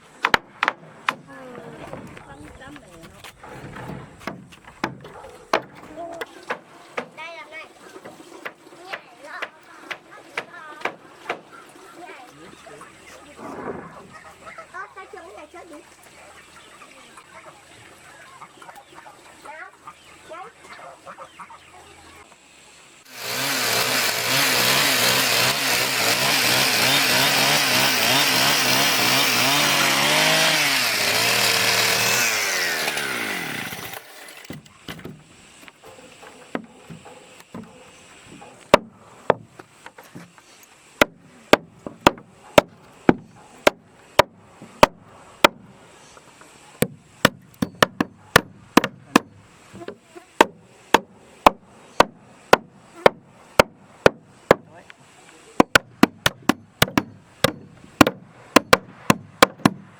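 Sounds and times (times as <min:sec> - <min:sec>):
sharp knocks: 0:00.1 - 0:02.2, 0:03.4 - 0:07.2, 0:36.5 - 0:39.5, 0:41.0 - 0:45.6, 0:46.8 - 0:49.4, 0:55.6 - 0:59.9
chainsaw running: 0:23.1 - 0:34.7, 0:55.7 - 0:58.8.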